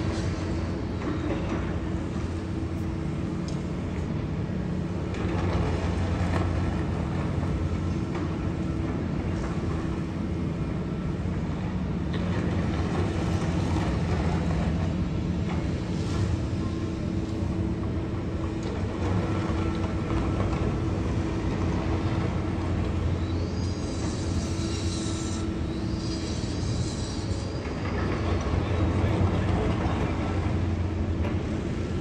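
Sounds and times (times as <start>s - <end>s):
distant freight train rumbling: 0.0s - 32.0s.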